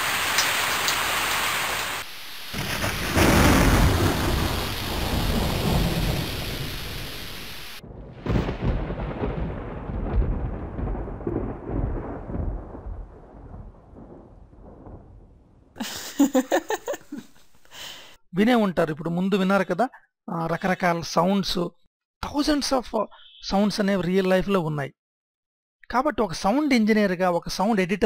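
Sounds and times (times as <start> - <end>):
rain hiss: 0.0 - 8.5, 15.8 - 17.0
thunderclap rumble: 2.5 - 16.0
woman laughing: 15.8 - 17.4.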